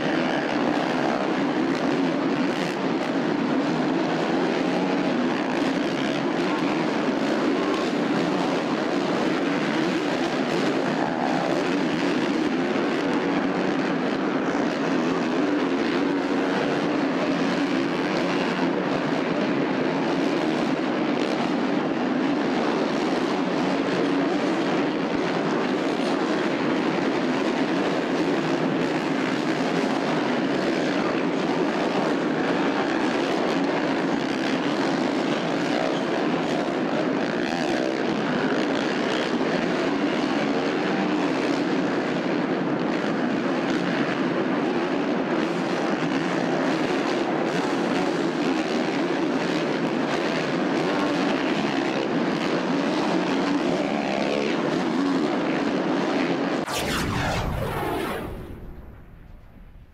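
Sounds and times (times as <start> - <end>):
brief sweeping sound: 56.7 - 59.9.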